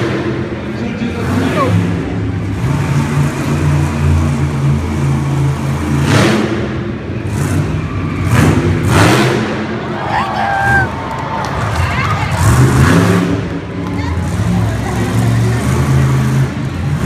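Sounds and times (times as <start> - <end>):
monster truck engine running hard: 0.0 - 17.0.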